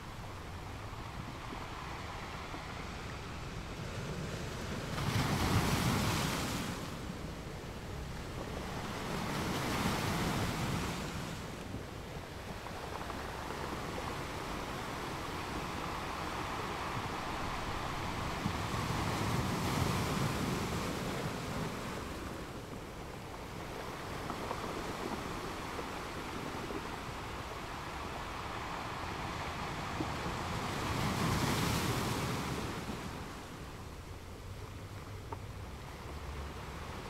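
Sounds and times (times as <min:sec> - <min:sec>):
waves breaking on shore: 0:00.0 - 0:37.0.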